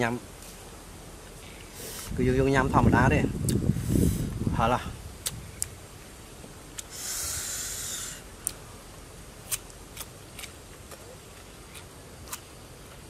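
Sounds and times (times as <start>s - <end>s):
crunchy food being chewed: 9.4s - 13.0s.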